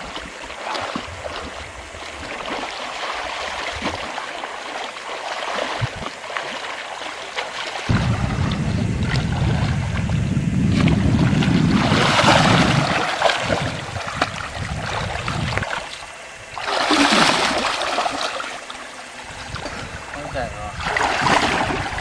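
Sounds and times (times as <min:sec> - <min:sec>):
water rushing and splashing: 0:00.0 - 0:22.0
low rumble on microphone: 0:07.9 - 0:15.7.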